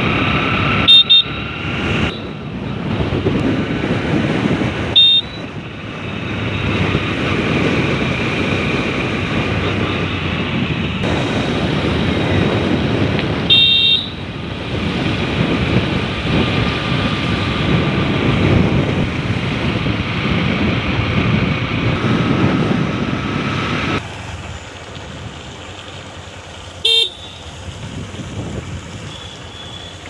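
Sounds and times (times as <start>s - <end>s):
road traffic: 0.0s - 30.0s
vehicle horn beep: 0.8s - 1.4s, 2.0s - 2.4s, 5.0s - 5.5s, 13.5s - 14.2s, 26.8s - 27.5s, 29.1s - 30.0s.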